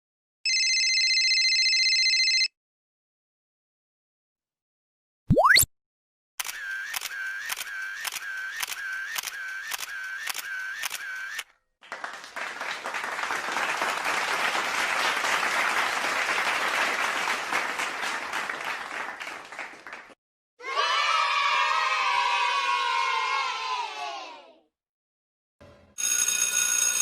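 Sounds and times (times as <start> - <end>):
clicking sound effect with tone: 5.3 - 5.7
crowd clapping: 10.8 - 20.2.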